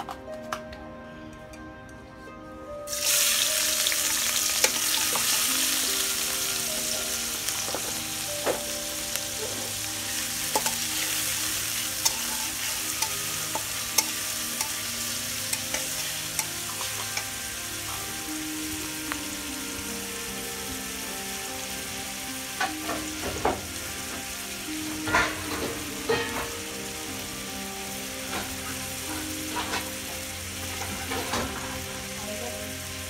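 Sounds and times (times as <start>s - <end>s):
onions sizzling in hot oil: 2.9s - 33.0s
metal spatula scraping pan: 9.4s - 17.3s.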